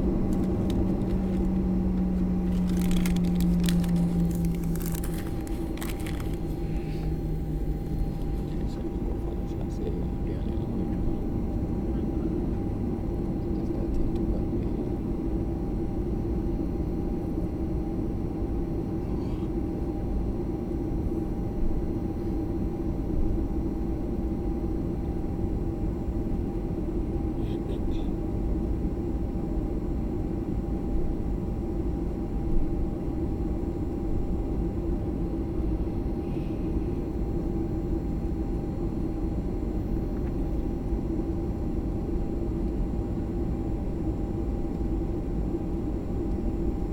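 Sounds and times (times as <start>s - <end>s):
jet engine and airflow drone: 0.0s - 46.9s
steady hum: 0.0s - 46.9s.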